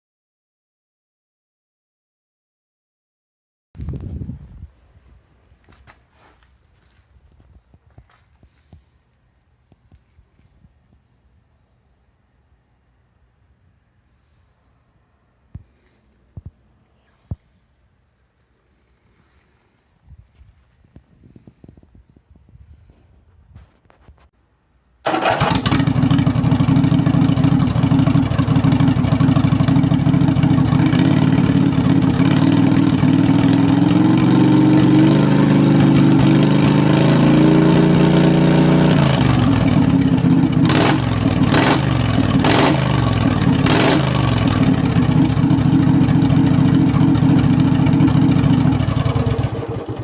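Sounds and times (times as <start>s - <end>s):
mower engine running loudly: 25.1s - 50.0s.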